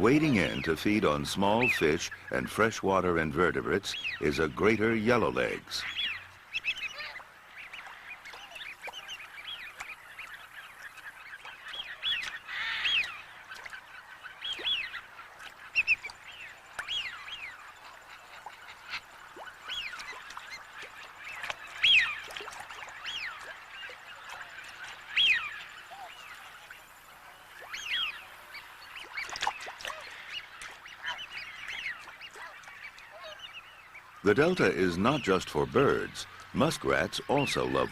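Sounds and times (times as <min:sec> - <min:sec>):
waterfowl chorus: 0:00.0 - 0:37.9
whistled bird calls: 0:05.4 - 0:15.1, 0:18.8 - 0:22.3, 0:22.9 - 0:26.8, 0:27.6 - 0:37.9.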